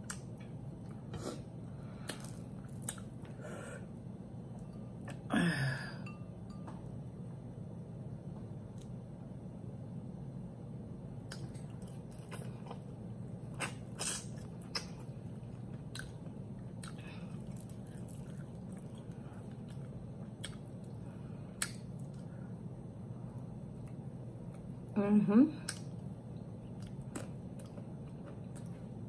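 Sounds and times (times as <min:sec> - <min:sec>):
low hum: 0:00.0 - 0:29.0
chewing and biting: 0:15.7 - 0:21.0
wet smacking clicks: 0:21.6 - 0:21.8.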